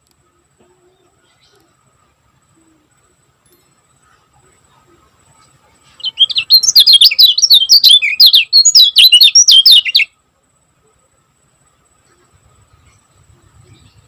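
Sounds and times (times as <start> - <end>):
bird singing high chirps: 5.9 - 10.1.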